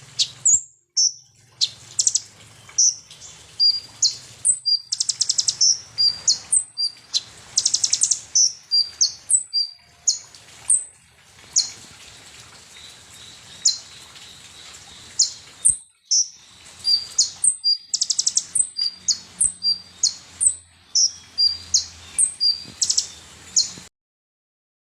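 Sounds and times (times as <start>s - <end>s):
sunbird singing chips and trills: 0.2s - 10.8s, 12.8s - 23.9s.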